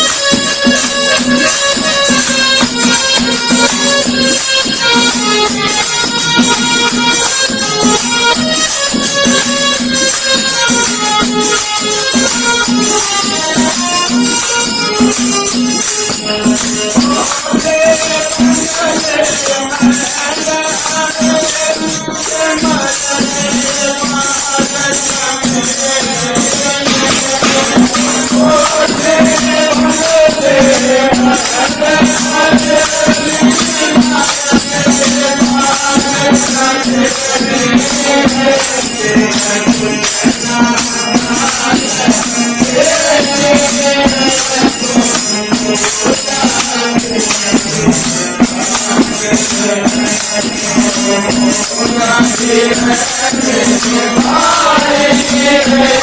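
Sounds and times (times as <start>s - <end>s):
jingling hand percussion: 0.0s - 56.0s.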